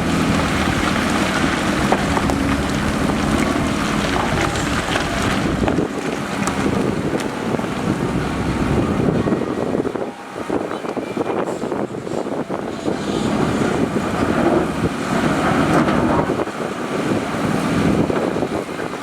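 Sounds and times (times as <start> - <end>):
diesel engine low rumble: 0.0 - 19.0
wind noise on microphone: 0.0 - 19.0.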